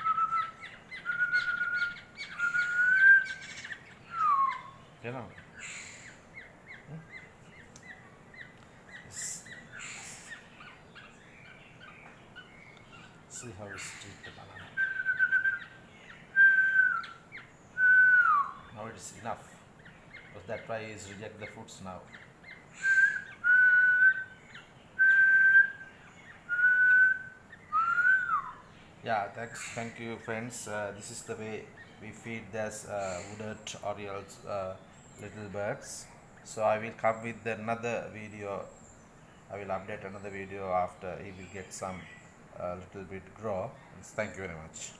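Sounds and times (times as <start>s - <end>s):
chicks chirping high begging calls: 0.0s - 44.9s
person whistling: 22.8s - 24.2s, 26.5s - 28.5s.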